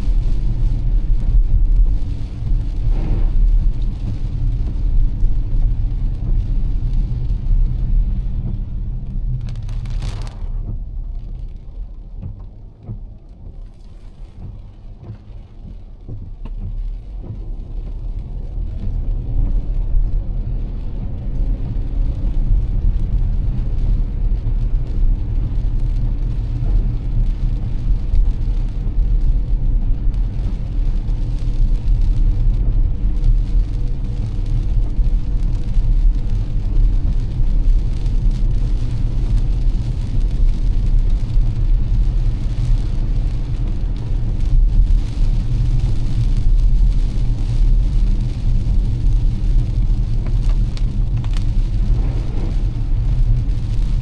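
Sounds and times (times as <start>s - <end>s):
car engine and road rumble: 0.0s - 54.0s
rain: 0.0s - 54.0s
tyres hissing on wet pavement: 16.8s - 54.0s.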